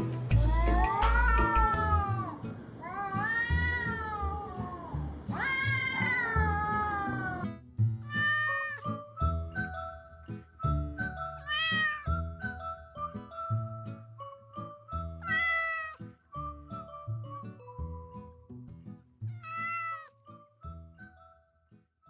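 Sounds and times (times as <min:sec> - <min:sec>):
light background music with beat: 0:00.0 - 0:02.3, 0:08.9 - 0:15.7
cat meowing: 0:00.4 - 0:07.5, 0:08.1 - 0:09.0, 0:11.4 - 0:12.2, 0:15.2 - 0:16.0, 0:19.3 - 0:20.2.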